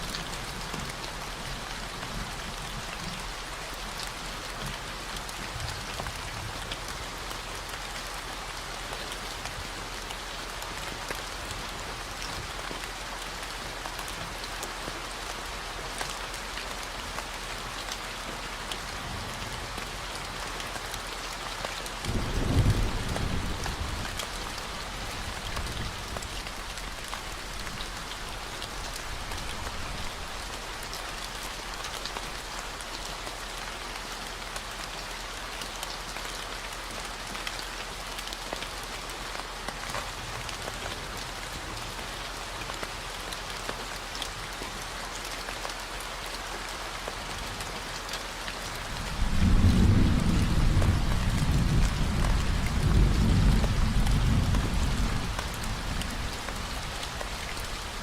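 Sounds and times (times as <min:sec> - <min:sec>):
steady rain falling: 0:00.0 - 0:58.0
thunder rumbling: 0:22.0 - 0:30.6, 0:48.9 - 0:57.9.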